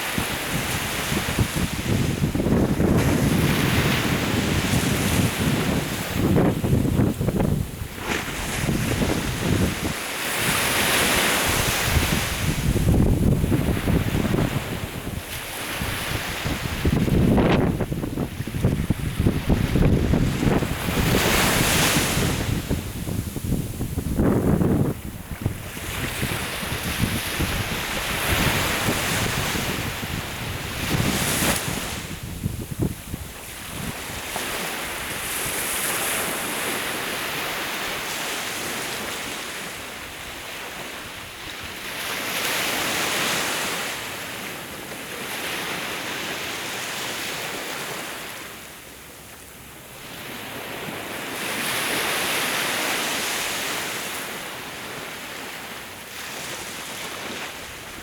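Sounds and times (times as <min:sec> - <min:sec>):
wind buffeting microphone: 0:00.0 - 0:36.7
sea waves breaking: 0:00.0 - 0:58.0.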